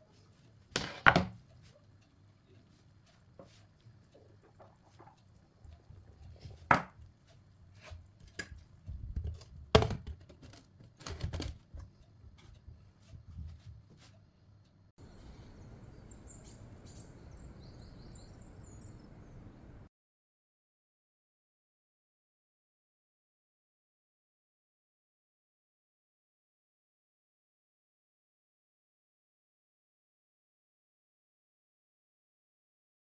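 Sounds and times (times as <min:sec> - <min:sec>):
kitchen knocks and clicks: 0:00.7 - 0:01.5, 0:03.4 - 0:07.1, 0:07.8 - 0:14.1
faint high chirps: 0:15.0 - 0:19.9.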